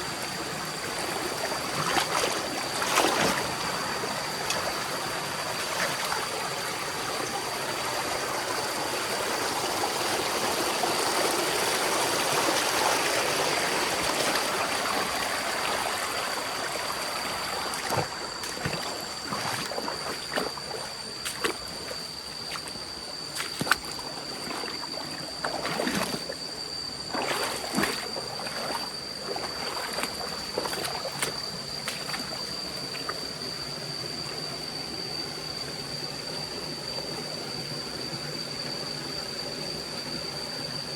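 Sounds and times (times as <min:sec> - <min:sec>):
stream running and trickling: 0:00.0 - 0:40.9
steady high-pitched tone: 0:11.8 - 0:38.4.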